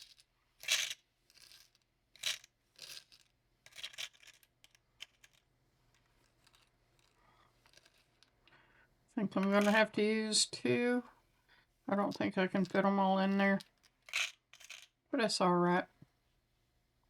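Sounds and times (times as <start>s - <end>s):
glass beads clinking and rattling: 0.0s - 5.4s, 9.4s - 9.8s, 12.0s - 14.9s.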